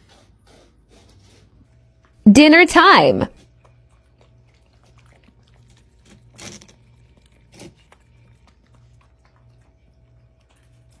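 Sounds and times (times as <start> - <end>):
puppies crunching food: 3.4 - 11.0.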